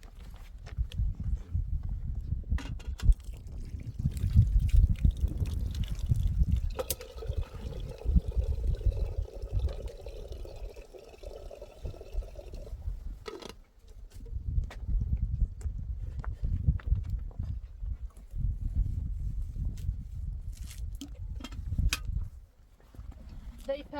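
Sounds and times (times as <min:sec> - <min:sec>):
liquid pouring: 0:03.2 - 0:12.9.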